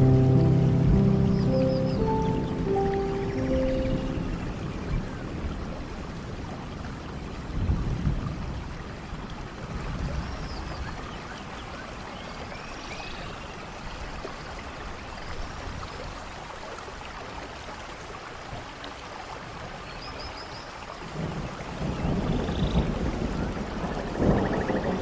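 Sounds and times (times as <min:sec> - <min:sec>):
faint low rumble: 0:00.0 - 0:06.0
rushing water: 0:00.0 - 0:25.0.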